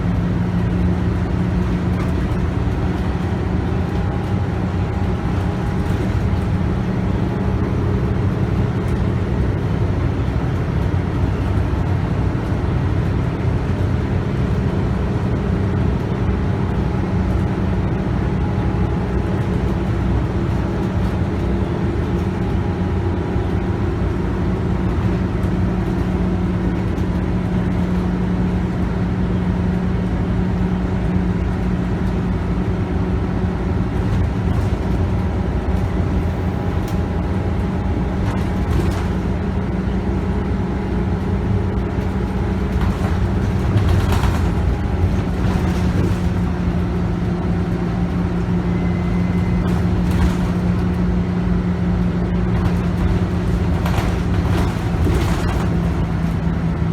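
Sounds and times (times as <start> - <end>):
bus diesel engine: 0.0 - 56.9
road and tyre noise: 0.0 - 56.9
rattles and clicks: 33.9 - 39.6, 41.7 - 47.6, 49.6 - 51.0, 52.4 - 56.9.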